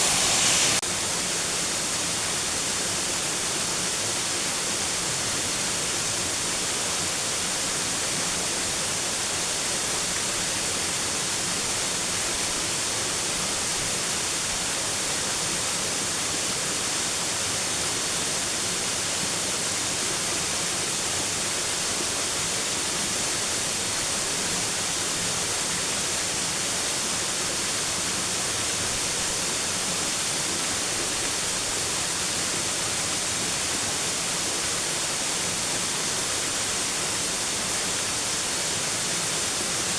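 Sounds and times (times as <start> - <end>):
waterfall rushing: 0.0 - 3.3.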